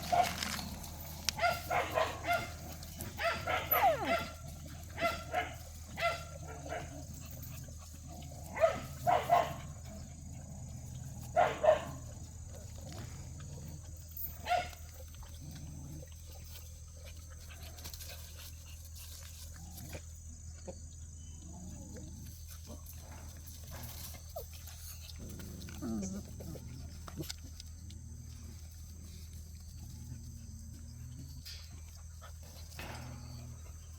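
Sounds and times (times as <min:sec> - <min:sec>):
puppies barking: 0:00.0 - 0:09.8, 0:11.2 - 0:12.1.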